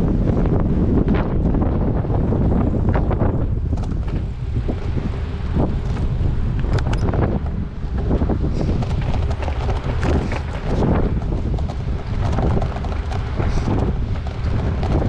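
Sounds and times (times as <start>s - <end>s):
wind buffeting microphone: 0.0s - 15.0s
sharp clicks and rattles: 5.8s - 15.0s.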